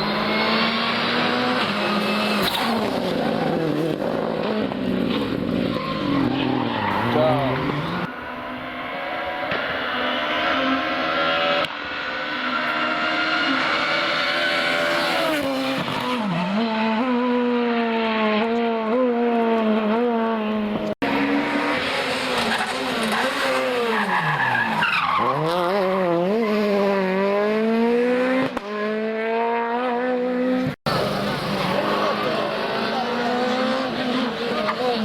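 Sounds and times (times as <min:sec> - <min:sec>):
rally car engine revving: 0:00.0 - 0:35.0.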